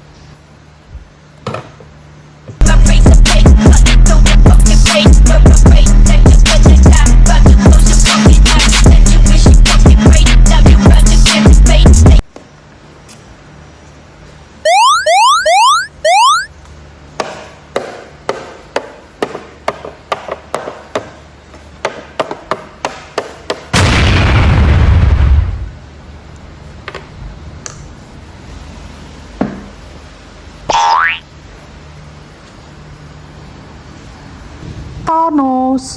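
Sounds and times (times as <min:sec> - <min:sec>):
rising pitch sweeps: 0:14.7 - 0:16.5
explosion burst with deep rumble: 0:23.8 - 0:25.8.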